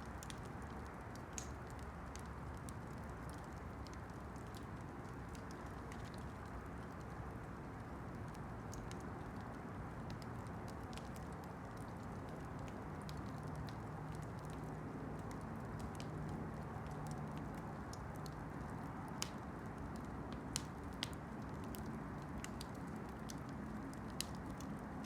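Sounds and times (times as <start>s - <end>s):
campfire crackles and pops: 0.0s - 25.0s.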